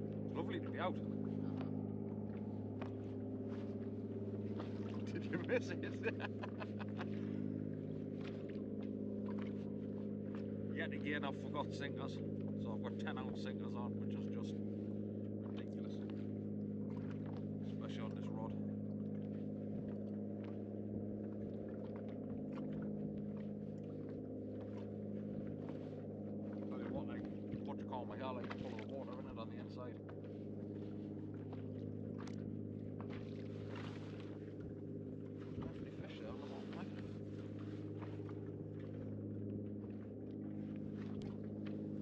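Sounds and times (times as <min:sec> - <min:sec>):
steady low hum: 0:00.0 - 0:42.0
water sounds: 0:00.0 - 0:42.0.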